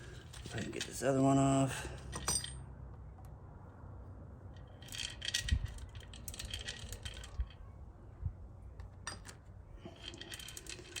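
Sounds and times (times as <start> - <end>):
metal engine parts clinking: 2.1 - 2.7.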